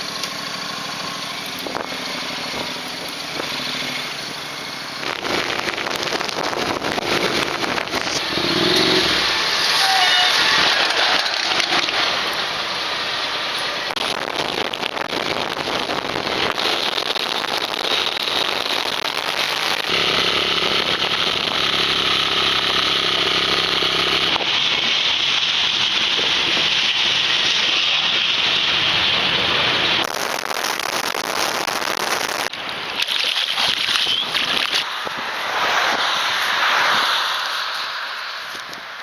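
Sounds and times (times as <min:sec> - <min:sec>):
wind noise on microphone: 0:01.6 - 0:03.6, 0:05.0 - 0:09.4, 0:13.9 - 0:20.0, 0:29.7 - 0:37.2.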